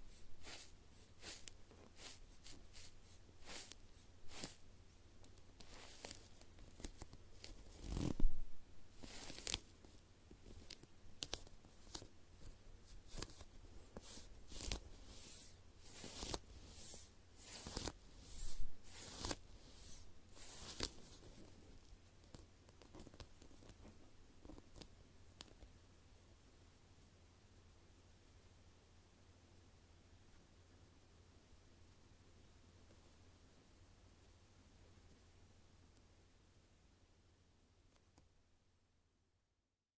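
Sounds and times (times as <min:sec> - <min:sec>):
squishy toy squeezed and rubbed: 0:00.2 - 0:04.6.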